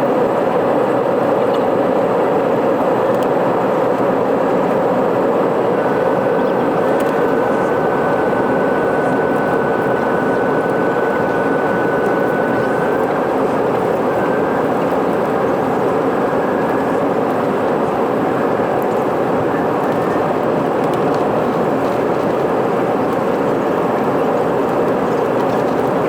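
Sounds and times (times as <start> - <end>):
jet engines and airflow rushing: 0.4 - 24.3
thin high whine: 5.1 - 18.4.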